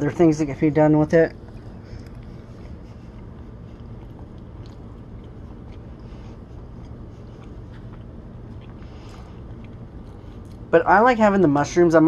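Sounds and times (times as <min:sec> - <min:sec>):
steady low hum: 0:00.0 - 0:12.0
person chewing: 0:01.3 - 0:10.7.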